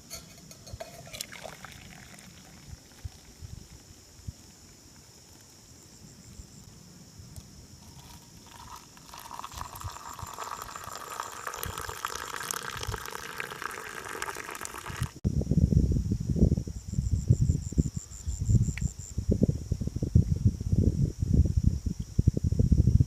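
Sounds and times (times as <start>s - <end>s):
crickets chirring: 0.0s - 23.0s
water running or splashing: 0.4s - 3.4s, 7.8s - 15.2s.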